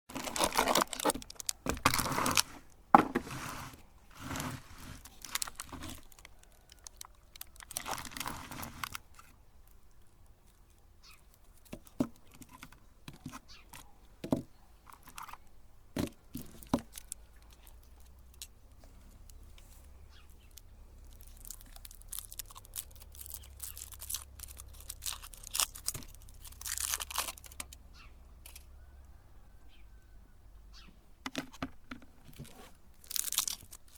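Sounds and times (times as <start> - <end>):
candies crunching and crinkling: 0.1 - 12.6, 16.3 - 18.5, 20.4 - 27.8, 32.4 - 33.9.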